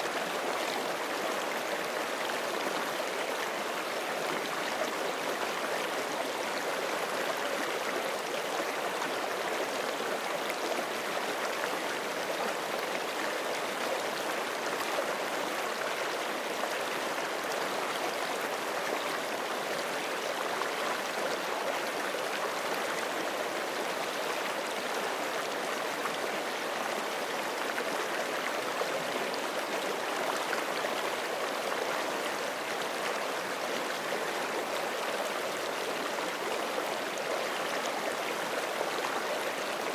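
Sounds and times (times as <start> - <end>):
creek water rushing over rocks: 0.0 - 39.9.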